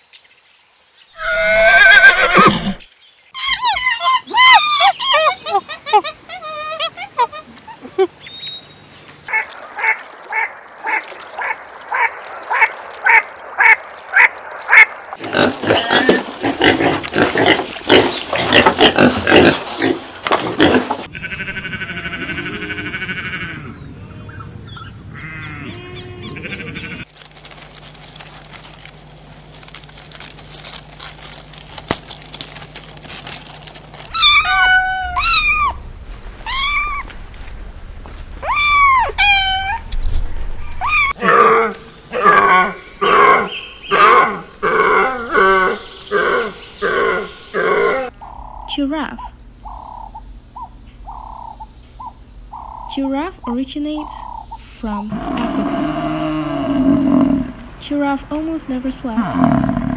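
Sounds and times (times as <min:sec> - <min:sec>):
animal cries: 0:01.2 - 0:02.8, 0:03.4 - 0:08.1, 0:21.1 - 0:24.2, 0:25.2 - 0:27.1, 0:34.1 - 0:35.8, 0:36.4 - 0:37.1, 0:38.4 - 0:39.9, 0:40.6 - 0:48.6
animal squeals: 0:01.2 - 0:08.0, 0:34.1 - 0:35.8, 0:36.4 - 0:37.1, 0:38.4 - 0:39.9, 0:40.6 - 0:41.5.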